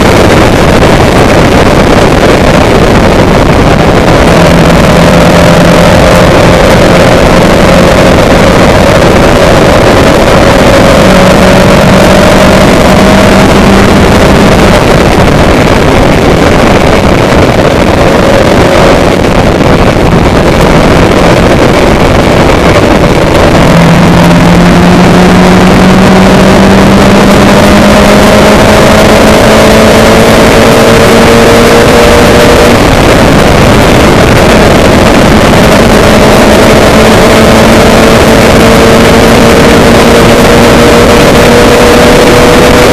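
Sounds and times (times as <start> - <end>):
vehicle engine running: 0.0 - 42.9
wind and road noise: 0.0 - 42.9.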